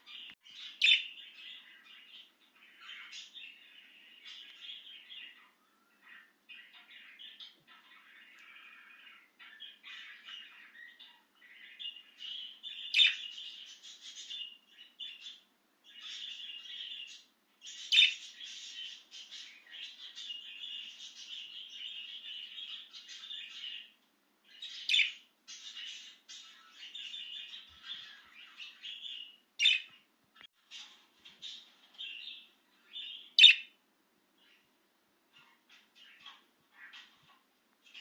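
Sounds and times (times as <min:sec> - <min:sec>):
budgerigar chirping: 0:33.0 - 0:33.7
sharp bird calls: 0:33.0 - 0:33.8.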